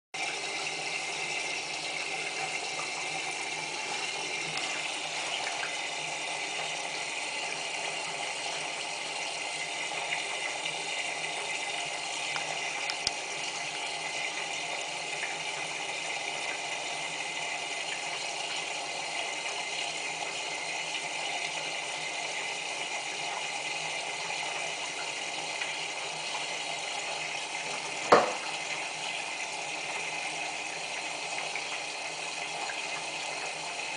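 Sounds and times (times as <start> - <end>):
water flowing into washing machine: 0.2 - 33.9
sharp knock: 28.1 - 28.4.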